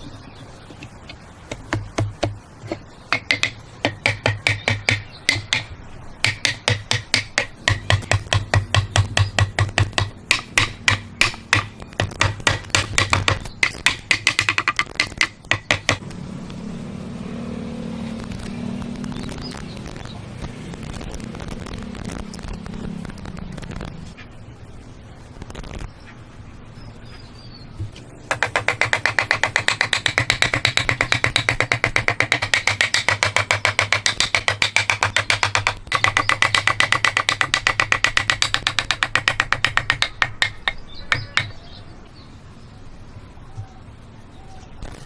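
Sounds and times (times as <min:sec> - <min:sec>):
hammering on wood: 0:01.5 - 0:16.0, 0:28.3 - 0:41.7.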